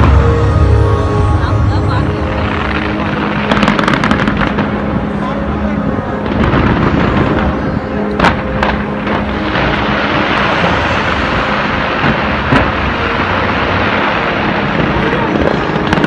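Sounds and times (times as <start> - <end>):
sharp firework bangs: 8.2 - 16.0.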